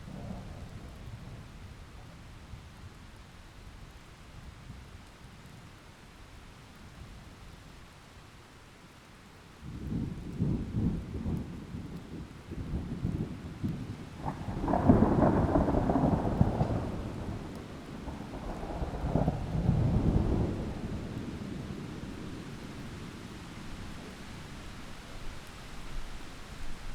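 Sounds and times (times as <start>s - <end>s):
heavy rain: 0.0s - 26.9s
thunder rumbling: 9.7s - 24.8s.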